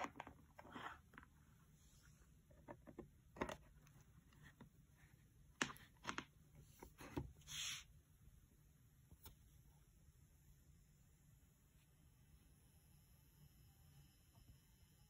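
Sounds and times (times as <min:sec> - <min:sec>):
power supply low buzz: 0:10.1 - 0:15.0.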